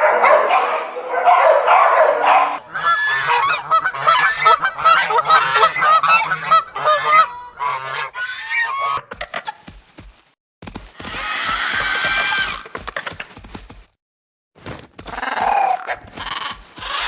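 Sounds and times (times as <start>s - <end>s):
geese honking: 1.4s - 9.5s.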